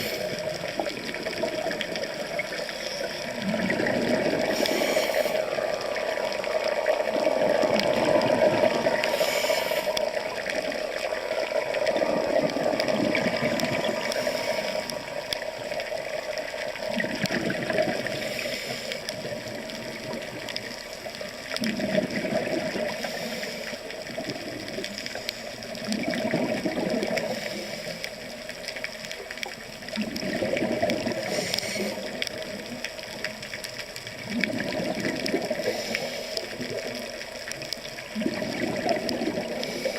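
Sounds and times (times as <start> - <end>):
rushing churning water: 0.0 - 28.8.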